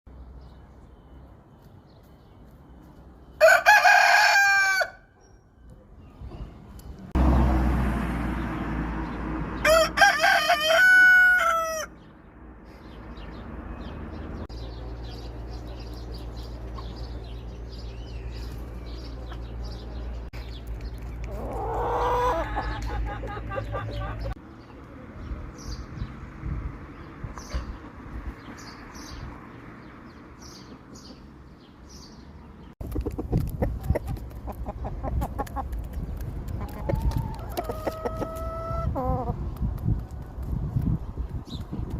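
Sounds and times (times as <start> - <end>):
rooster crowing: 3.4 - 5.1, 9.6 - 12.0.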